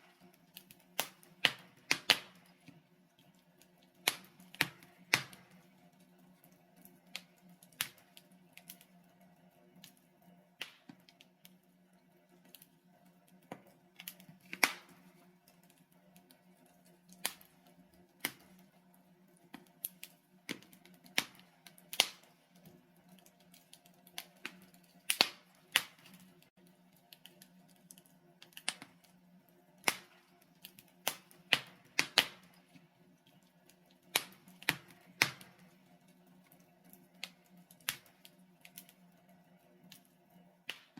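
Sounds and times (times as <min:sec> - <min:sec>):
wood fire crackling: 0:00.0 - 0:40.9
sharp pops from fire: 0:00.1 - 0:02.6, 0:03.6 - 0:05.7, 0:06.8 - 0:08.9, 0:10.6 - 0:11.6, 0:13.3 - 0:16.3, 0:17.1 - 0:18.6, 0:19.5 - 0:29.2, 0:29.8 - 0:32.7, 0:34.0 - 0:35.7, 0:36.8 - 0:39.0, 0:40.7 - 0:40.9.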